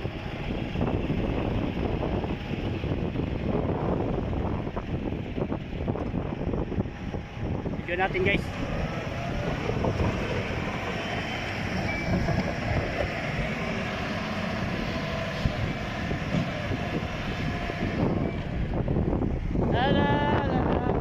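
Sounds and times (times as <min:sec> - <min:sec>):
truck engine rumbling: 0:00.0 - 0:21.0.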